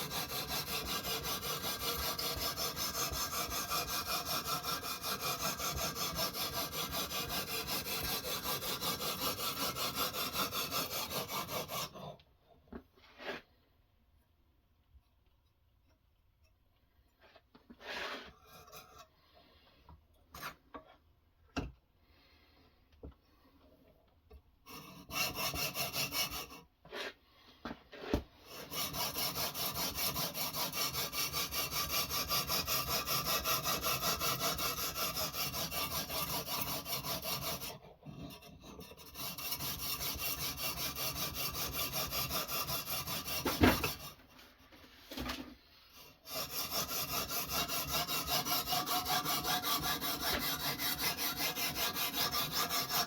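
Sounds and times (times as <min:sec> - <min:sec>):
sharpening stone scraping blade: 0:00.0 - 0:12.1, 0:46.3 - 0:53.0.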